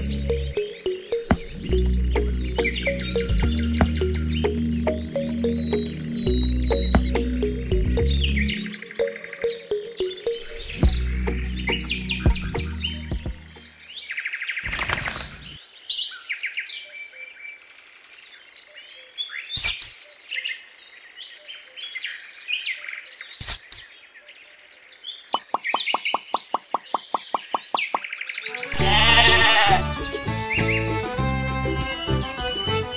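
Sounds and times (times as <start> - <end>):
birds chirping: 0.0 - 32.9
sharp knocks: 6.9 - 7.2.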